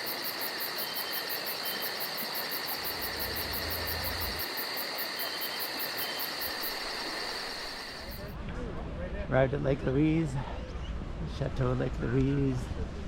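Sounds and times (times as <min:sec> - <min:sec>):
crickets trilling: 0:00.0 - 0:08.3.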